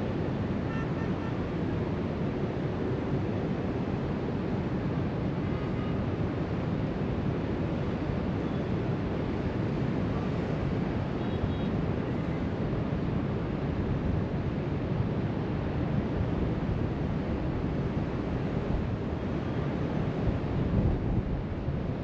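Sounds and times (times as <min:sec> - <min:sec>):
wind on microphone: 0:15.6 - 0:22.0.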